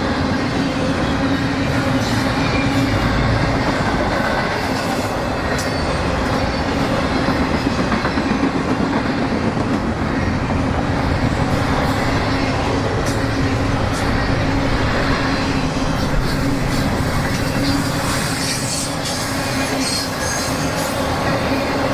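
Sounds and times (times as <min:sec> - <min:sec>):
train wheels on rails: 0:00.0 - 0:21.9.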